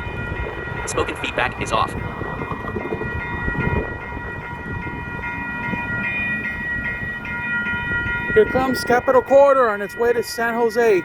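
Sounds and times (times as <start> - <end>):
crossing bell ringing: 0.0 - 11.0
train rumble: 0.0 - 11.0.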